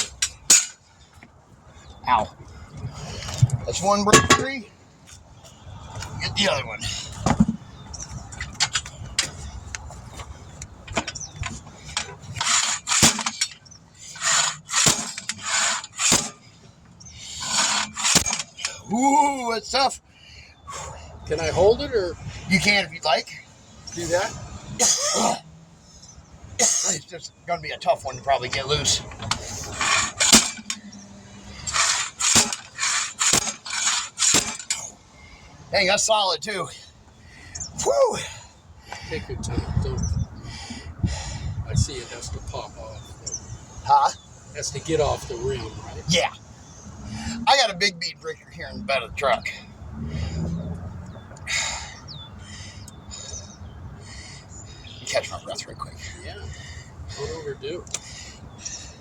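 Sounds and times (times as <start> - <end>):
metal clicks and clanks: 0.0 - 0.8, 8.4 - 16.4, 17.5 - 18.8, 28.5 - 31.0, 31.6 - 34.9
hard effortful breath: 20.0 - 21.3, 36.8 - 39.3, 40.3 - 41.6, 46.6 - 47.5, 49.6 - 55.0, 55.8 - 59.0.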